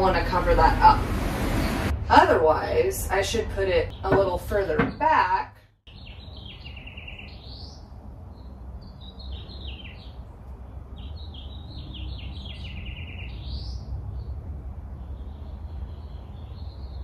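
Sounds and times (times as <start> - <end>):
small bird singing: 5.9 - 17.0.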